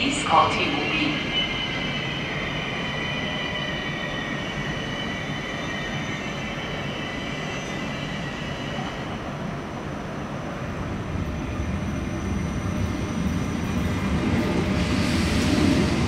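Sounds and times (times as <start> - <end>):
high-pitched train wheel squeal: 0.0 - 9.9
train rumbling: 0.0 - 16.0.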